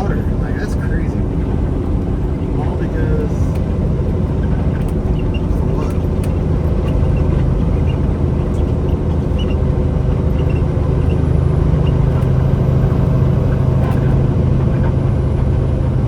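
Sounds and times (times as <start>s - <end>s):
road noise: 0.0s - 16.0s
truck diesel engine droning: 0.0s - 16.0s.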